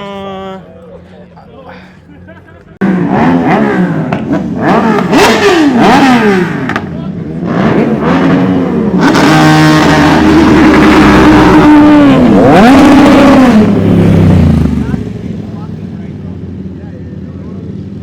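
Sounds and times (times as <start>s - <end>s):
vehicle engine revving hard: 2.8s - 15.0s.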